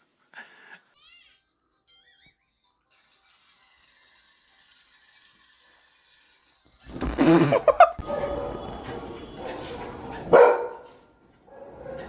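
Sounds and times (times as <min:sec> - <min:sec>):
dog barking and yelping: 0:08.0 - 0:12.0.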